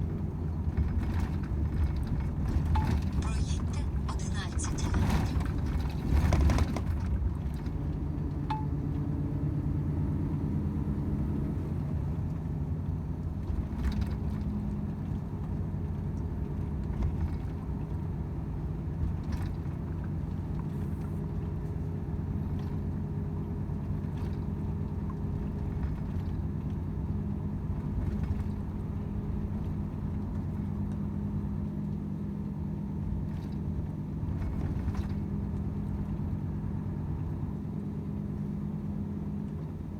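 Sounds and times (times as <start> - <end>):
truck diesel engine droning: 0.0 - 12.1.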